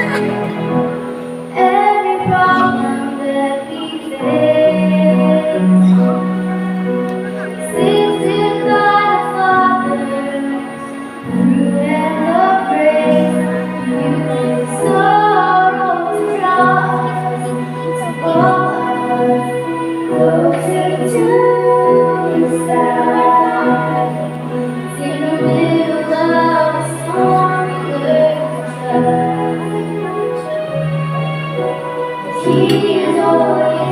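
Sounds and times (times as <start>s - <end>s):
instrumental accompaniment: 0.0s - 33.9s
women singing: 1.5s - 6.2s, 7.6s - 30.2s, 32.3s - 33.9s.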